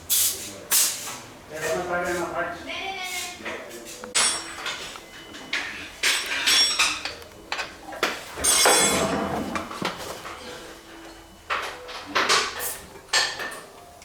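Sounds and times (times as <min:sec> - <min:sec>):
metal tools clanking: 0:03.5 - 0:13.9.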